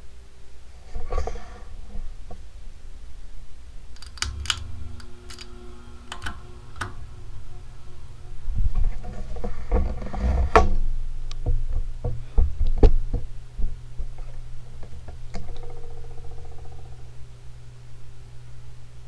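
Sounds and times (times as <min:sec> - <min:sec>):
ceiling fan motor hum: 0:00.0 - 0:19.0
buzzing rattle: 0:00.7 - 0:19.0
irregular clicks and knocks: 0:03.9 - 0:17.3.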